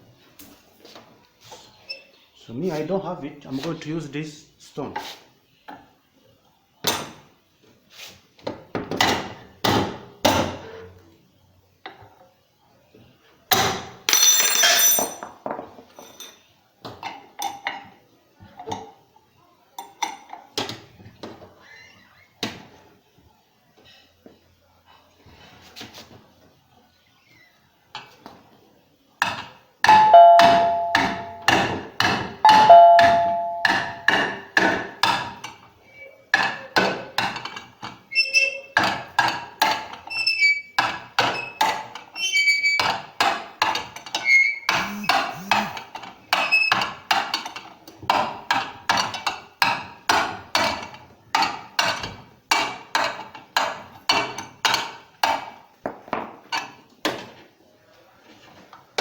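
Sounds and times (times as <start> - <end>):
stone pounding metal: 29.9 - 35.3.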